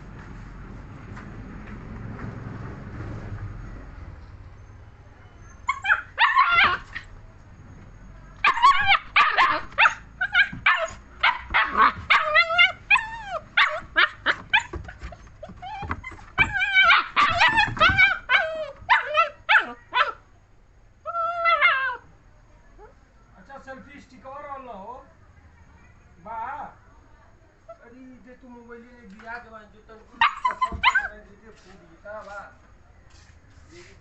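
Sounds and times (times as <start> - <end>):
puppy barking and yelping: 5.5 - 7.1, 8.4 - 20.2, 21.0 - 22.1, 30.2 - 31.2.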